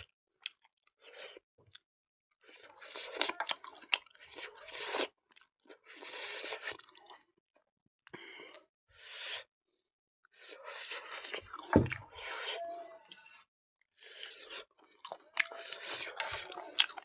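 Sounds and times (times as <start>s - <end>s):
person chewing food: 0.0s - 1.8s, 2.4s - 7.3s, 10.3s - 13.4s, 14.0s - 17.0s.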